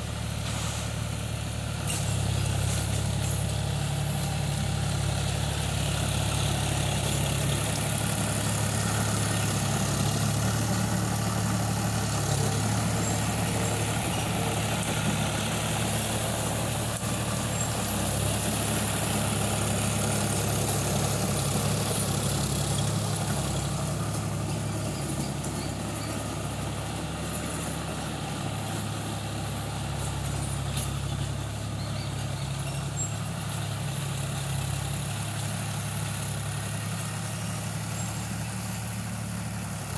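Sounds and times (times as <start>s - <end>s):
tractor engine humming: 0.0s - 39.9s.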